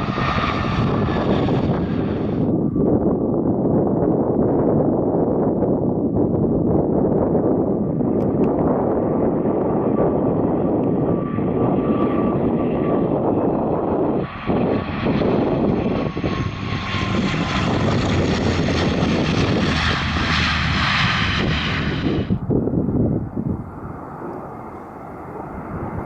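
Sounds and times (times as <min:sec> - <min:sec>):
thin engine whine: 0:00.0 - 0:03.2, 0:09.7 - 0:26.0
airliner engines: 0:00.0 - 0:26.0.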